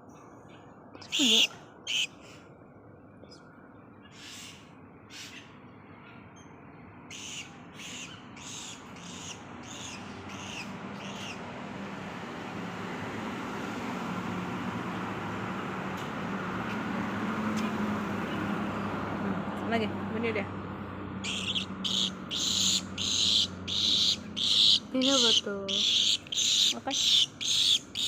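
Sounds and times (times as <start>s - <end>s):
vehicle approaching: 8.9s - 28.0s
swiftlet calling: 21.2s - 28.0s.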